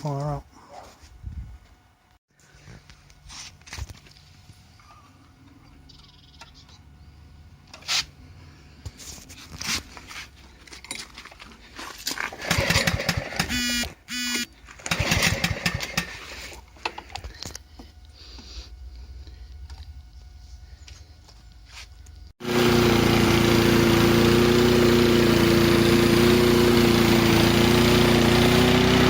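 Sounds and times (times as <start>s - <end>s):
lawn mower engine starting: 12.0s - 16.6s, 22.4s - 29.0s.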